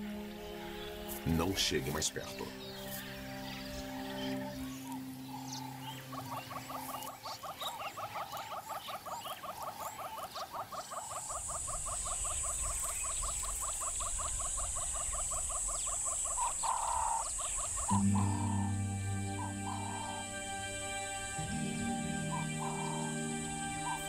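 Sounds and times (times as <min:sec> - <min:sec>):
steady high hiss: 0:11.3 - 0:24.0.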